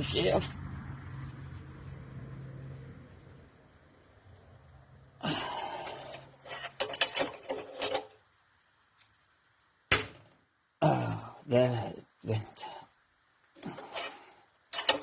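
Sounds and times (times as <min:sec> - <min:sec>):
metal scrape: 0:05.8 - 0:08.2, 0:13.6 - 0:15.0
metal clicks and knocks: 0:06.1 - 0:08.2, 0:14.7 - 0:15.0.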